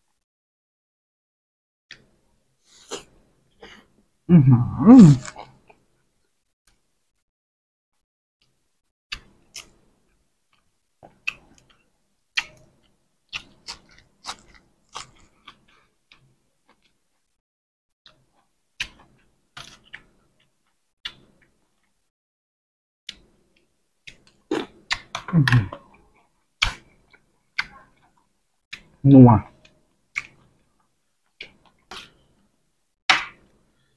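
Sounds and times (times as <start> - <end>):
person chewing crunchy food: 13.3 - 17.2.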